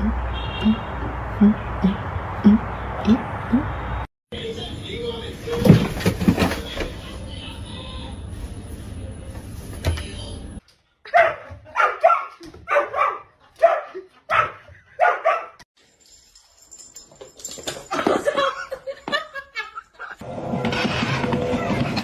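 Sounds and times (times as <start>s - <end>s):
dog barking: 11.1s - 15.6s.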